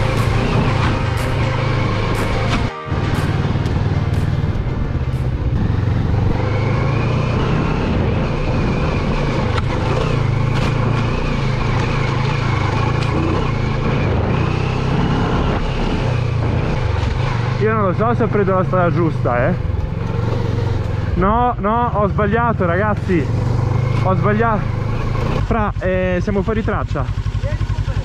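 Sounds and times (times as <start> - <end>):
wind noise: 0.0 - 11.8
motorcycle engine running: 0.0 - 28.0.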